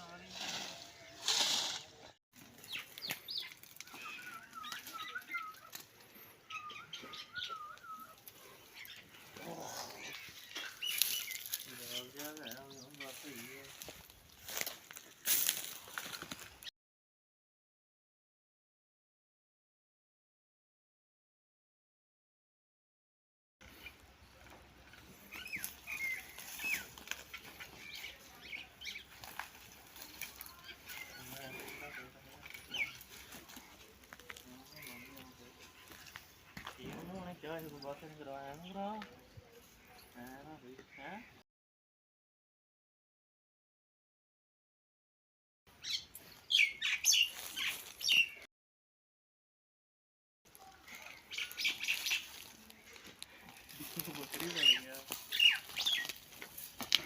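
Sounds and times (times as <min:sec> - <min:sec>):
bird singing warbling phrases: 0:02.6 - 0:05.8, 0:06.4 - 0:13.9, 0:25.3 - 0:29.2, 0:30.0 - 0:33.3, 0:45.8 - 0:48.5, 0:50.6 - 0:53.0, 0:53.6 - 0:56.2.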